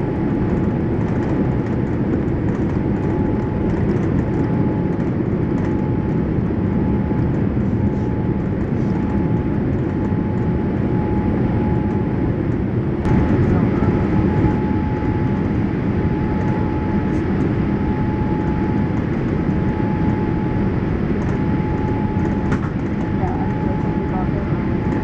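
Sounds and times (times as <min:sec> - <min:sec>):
aircraft cabin rumble: 0:00.0 - 0:25.0
faint steady whine: 0:13.1 - 0:25.0.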